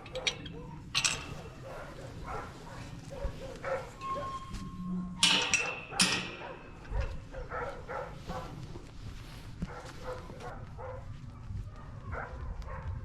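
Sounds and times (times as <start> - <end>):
dogs barking: 0.0 - 4.4, 5.2 - 8.8, 9.6 - 13.0.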